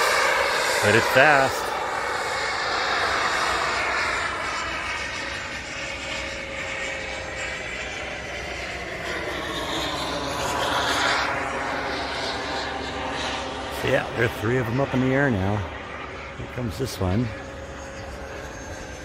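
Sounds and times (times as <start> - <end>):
model aircraft engine whine: 0.0 - 19.0.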